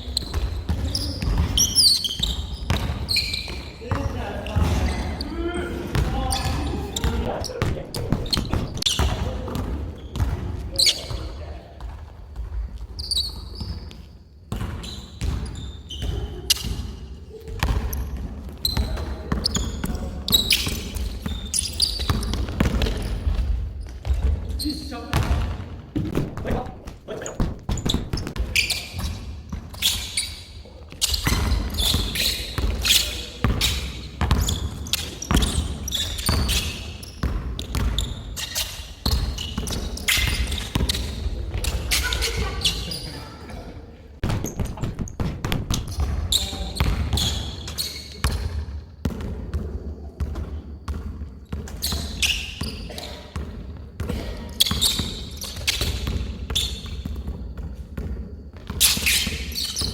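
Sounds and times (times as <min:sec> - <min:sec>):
basketball bouncing on court: 0:00.0 - 0:43.1, 0:44.2 - 0:59.9
voices: 0:03.6 - 0:09.7, 0:39.8 - 0:44.2.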